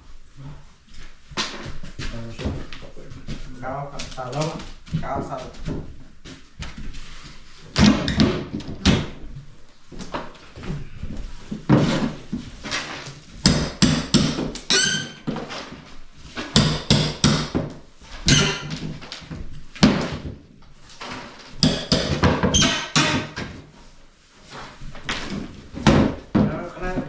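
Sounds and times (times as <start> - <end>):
knocks and clatter of materials: 1.3 - 27.0
short squeak: 14.7 - 15.3.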